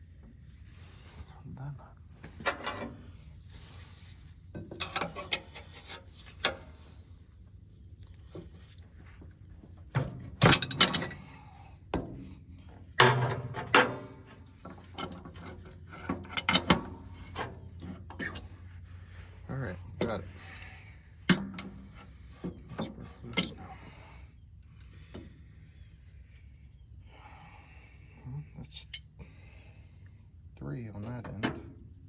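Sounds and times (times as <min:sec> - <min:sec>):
wrenches clanking against metal: 0:02.2 - 0:03.2, 0:04.5 - 0:07.0, 0:09.9 - 0:11.5, 0:12.9 - 0:18.7, 0:19.4 - 0:24.0.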